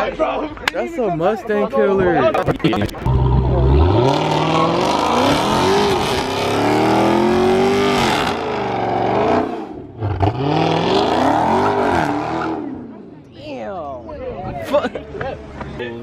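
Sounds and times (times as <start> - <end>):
car engine revving hard: 3.1 - 12.8.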